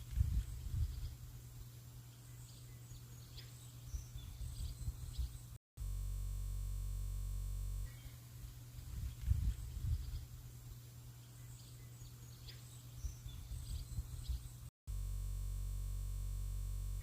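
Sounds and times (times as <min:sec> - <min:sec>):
wind buffeting microphone: 0:00.0 - 0:01.2, 0:08.8 - 0:10.4, 0:13.0 - 0:14.5
faint bird chirps: 0:00.0 - 0:05.6, 0:07.8 - 0:14.7
low electronic drone: 0:05.8 - 0:08.0, 0:14.9 - 0:17.0.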